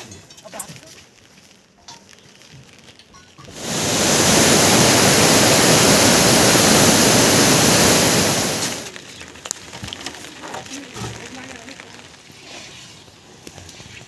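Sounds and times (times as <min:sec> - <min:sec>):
loud rush of water: 0:03.5 - 0:08.9.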